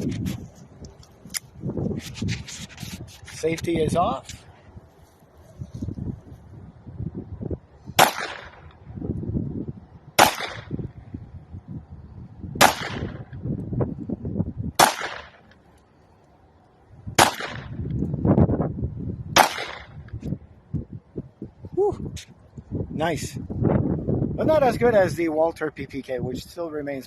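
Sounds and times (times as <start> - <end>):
wind buffeting microphone: 0.0 - 15.4, 16.8 - 27.0
pistol shots: 8.0 - 8.8, 10.2 - 10.8, 12.6 - 13.3, 14.8 - 15.5, 17.2 - 17.8, 19.4 - 20.0.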